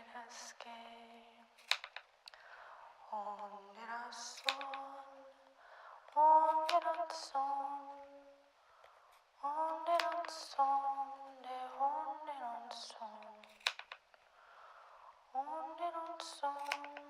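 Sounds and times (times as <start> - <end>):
woman singing held notes: 3.0 - 5.4, 6.1 - 8.4, 9.4 - 13.7, 15.3 - 17.0.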